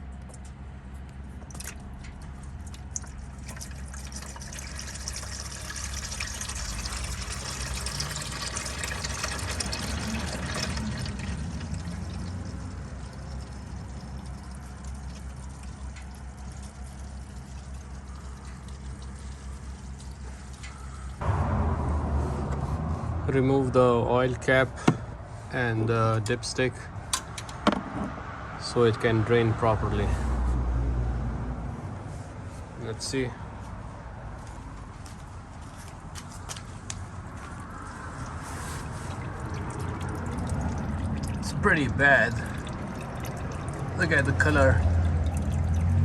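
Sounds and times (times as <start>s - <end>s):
oil pouring into a pan: 2.7s - 21.1s, 37.8s - 46.0s.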